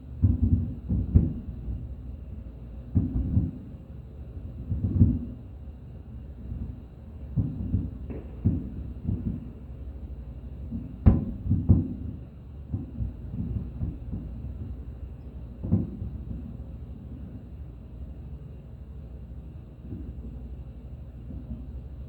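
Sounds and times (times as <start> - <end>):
fireworks booming: 0.2 - 2.0, 2.9 - 3.8, 4.6 - 5.5, 6.5 - 17.7.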